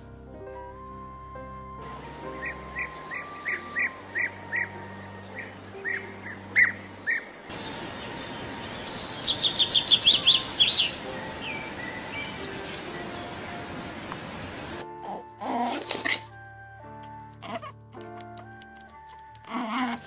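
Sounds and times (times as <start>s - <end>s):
bird chirps: 1.8s - 14.8s
bird singing rapid high notes: 1.8s - 14.8s.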